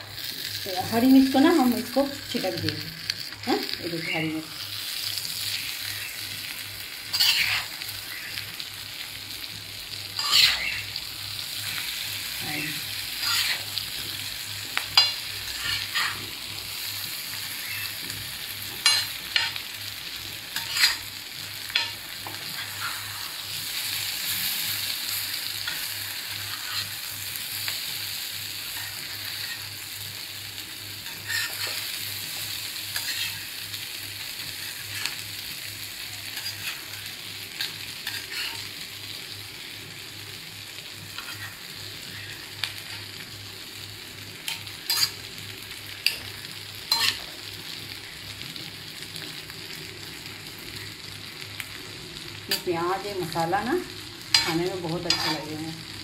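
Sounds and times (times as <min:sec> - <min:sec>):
eggs sizzling in oil: 0:00.0 - 0:56.0
spatula scraping a pan: 0:07.1 - 0:08.4, 0:10.1 - 0:11.0, 0:13.1 - 0:14.2, 0:15.0 - 0:16.4, 0:20.6 - 0:27.0, 0:31.0 - 0:33.6, 0:36.2 - 0:38.7, 0:41.1 - 0:43.2, 0:44.5 - 0:45.3, 0:46.9 - 0:47.4, 0:54.3 - 0:55.5.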